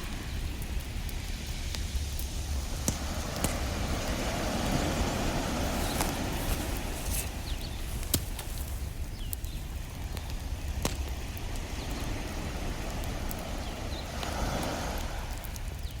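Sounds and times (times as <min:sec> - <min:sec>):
ocean surf rumble: 0:00.0 - 0:09.1, 0:09.8 - 0:16.0
campfire crackling: 0:00.0 - 0:16.0
sharp wood pops: 0:05.7 - 0:09.6, 0:10.2 - 0:11.2.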